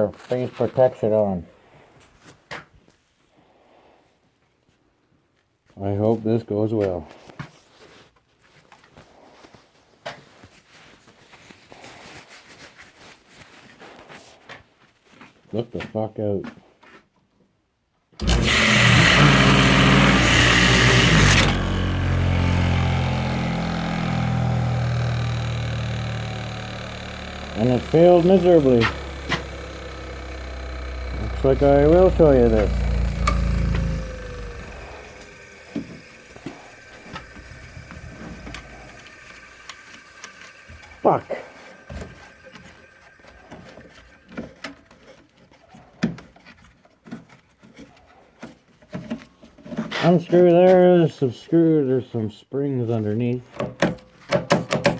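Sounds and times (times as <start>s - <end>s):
motor humming: 18.2s - 44.5s
belt sander belt rushing: 18.2s - 44.7s
knocks and clicks of handling: 53.5s - 54.9s.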